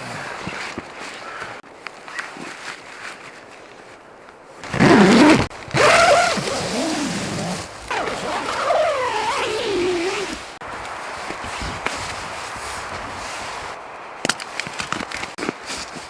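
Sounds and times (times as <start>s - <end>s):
whistling blizzard wind gusting: 5.4s - 14.2s.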